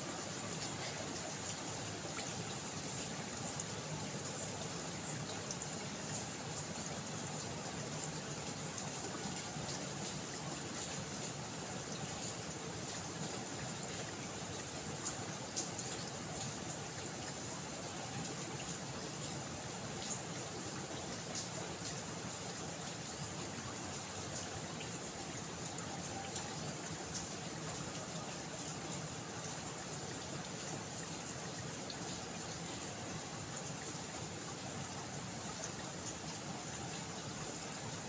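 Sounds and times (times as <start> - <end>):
steady rain falling: 0.0 - 38.0
water trickling: 0.0 - 38.0.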